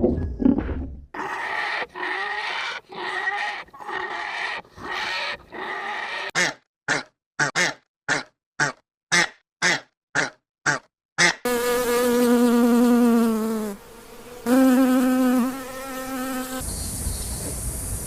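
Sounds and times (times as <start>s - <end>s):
animal calling: 1.2s - 11.3s.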